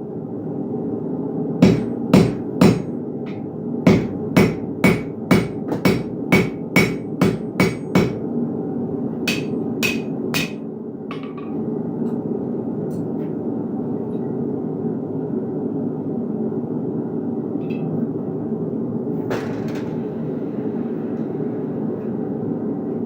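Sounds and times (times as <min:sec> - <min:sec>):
steady low hum: 0:00.0 - 0:23.0
hammer striking iron on anvil: 0:01.6 - 0:08.2, 0:09.3 - 0:11.6.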